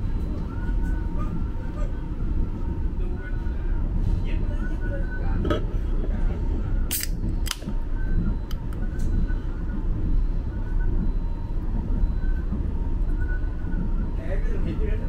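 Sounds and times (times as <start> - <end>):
train rumbling: 0.0 - 15.0
soda can pull tab cracks: 6.9 - 7.6.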